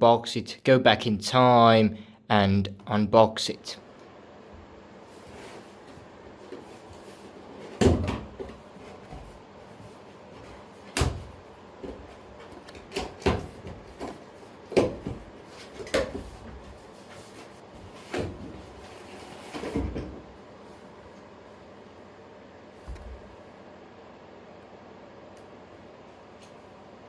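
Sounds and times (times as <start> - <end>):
dull knocks and bumps: 22.9 - 23.3.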